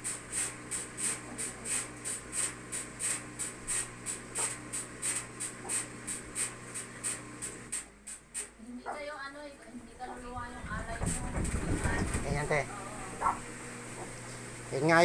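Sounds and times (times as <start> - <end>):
motor hum: 8.6 - 15.0
washing machine drum swishing: 10.2 - 13.4.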